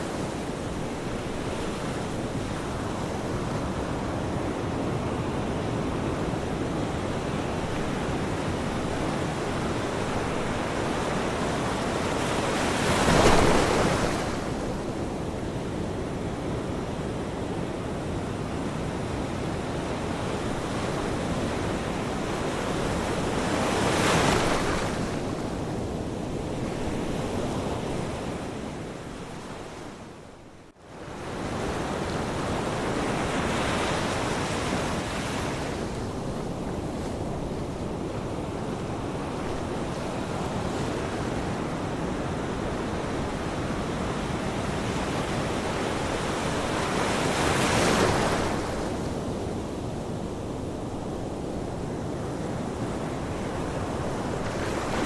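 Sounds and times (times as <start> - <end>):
ocean waves washing on shore: 0.0 - 55.0
waves breaking: 9.8 - 14.8.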